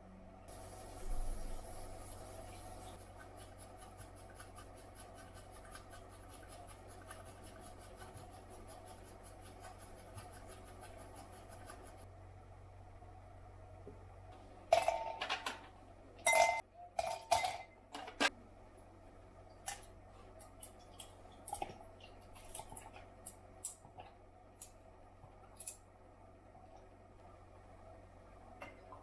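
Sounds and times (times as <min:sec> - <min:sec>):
kitchenware clinking: 0:14.7 - 0:18.3.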